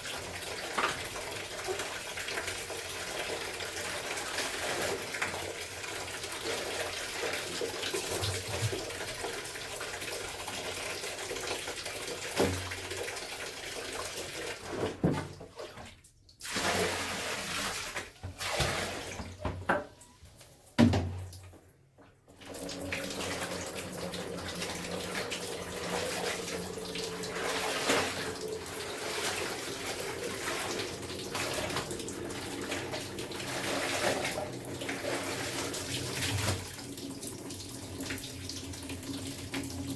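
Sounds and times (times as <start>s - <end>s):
water running and splashing: 22.5s - 39.9s.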